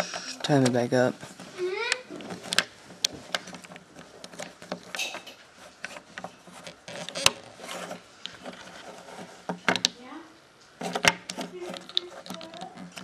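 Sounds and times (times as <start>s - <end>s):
plastic parts clicking together: 10.8s - 13.0s.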